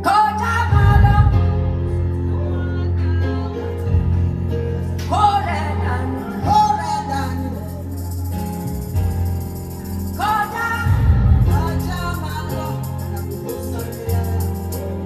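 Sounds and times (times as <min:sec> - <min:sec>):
gospel worship song: 0:00.0 - 0:15.0
tambourine: 0:07.3 - 0:15.0.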